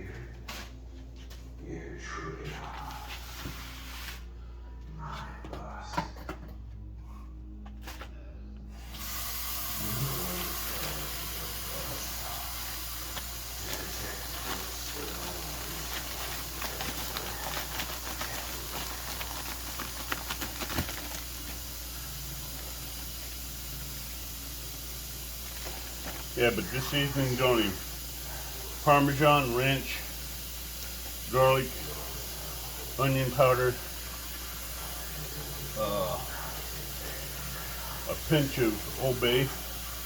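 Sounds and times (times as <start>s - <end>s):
steady hiss: 8.9s - 40.0s.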